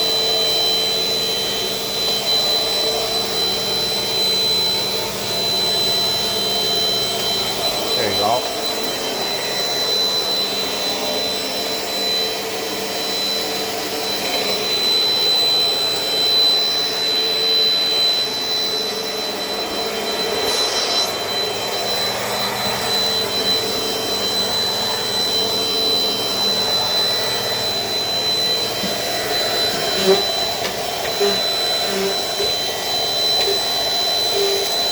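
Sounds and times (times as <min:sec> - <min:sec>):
vacuum cleaner whining: 0:00.0 - 0:34.9
brief hiss: 0:20.2 - 0:22.2.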